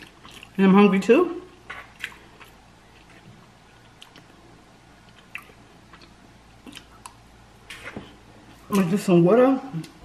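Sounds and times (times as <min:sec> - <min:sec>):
person chewing food: 0:00.0 - 0:00.6, 0:01.6 - 0:08.6.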